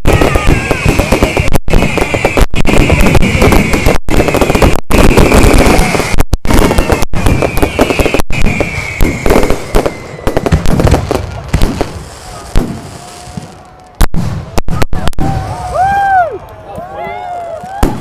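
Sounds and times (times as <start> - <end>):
fireworks crackling and banging: 0.0 - 18.0
firework whistle falling in pitch: 5.6 - 10.7.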